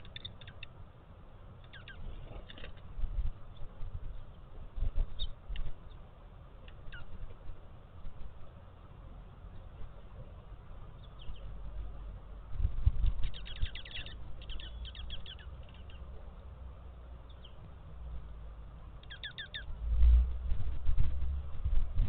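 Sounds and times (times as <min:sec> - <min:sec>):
small birds calling: 0:00.0 - 0:20.0.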